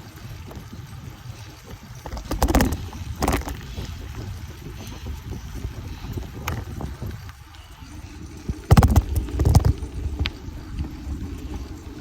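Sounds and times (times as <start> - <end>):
wind and bike rolling rumble: 0.0 - 12.0
bike clattering knocks: 2.0 - 4.0, 8.7 - 10.3.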